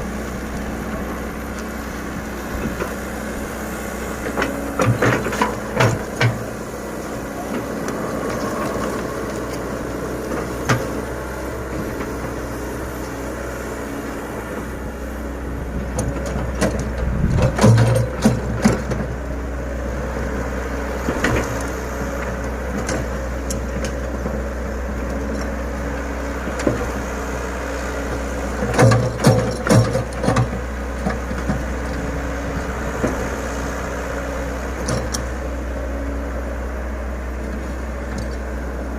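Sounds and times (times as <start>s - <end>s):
excavator diesel engine running: 0.0s - 38.9s
machine knocks and clanks: 4.3s - 6.6s, 15.9s - 19.1s, 28.6s - 31.7s.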